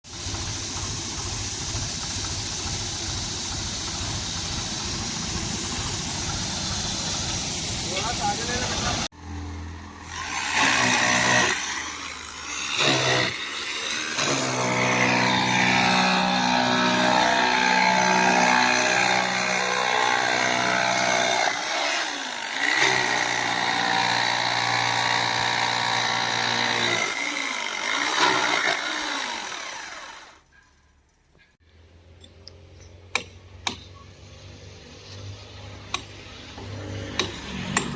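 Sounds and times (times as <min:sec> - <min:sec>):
electric drill motor running: 0:09.9 - 0:30.4.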